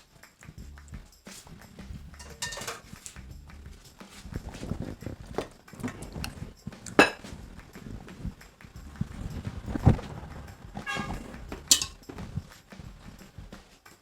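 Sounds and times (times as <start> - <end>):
loud metal clank: 2.2 - 2.9, 10.8 - 12.1
utensils clinking against pot: 2.2 - 3.2, 5.3 - 7.4, 10.8 - 12.4.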